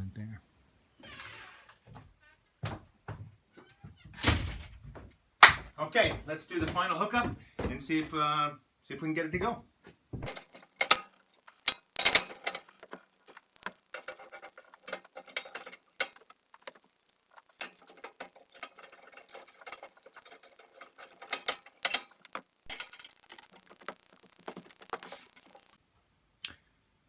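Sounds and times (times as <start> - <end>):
soft knocks and rattles: 1.8 - 8.2.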